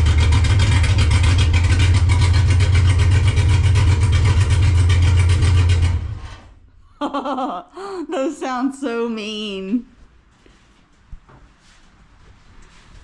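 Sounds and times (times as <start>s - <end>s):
car engine idling rumble: 0.0s - 6.7s.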